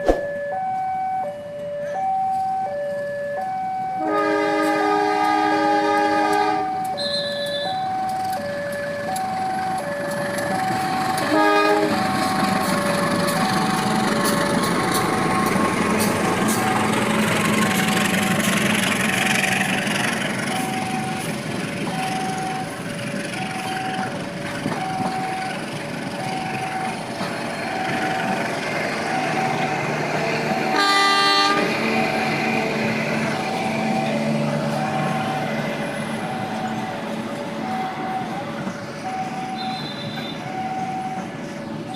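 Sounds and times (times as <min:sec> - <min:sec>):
passing train: 0:00.0 - 0:41.9
train horn blast: 0:04.0 - 0:07.8, 0:11.2 - 0:12.0, 0:30.6 - 0:32.0.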